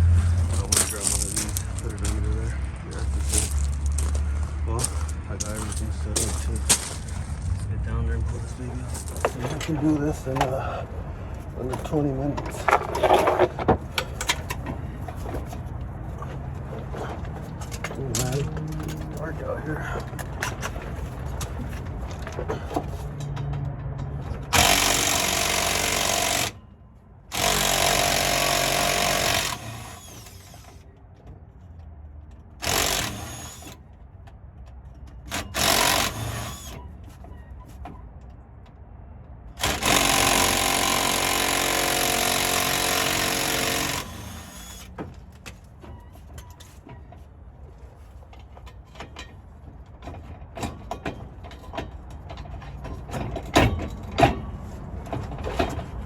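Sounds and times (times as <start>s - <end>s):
impact wrench hammering: 24.5s - 26.6s, 27.3s - 30.6s, 39.6s - 44.9s.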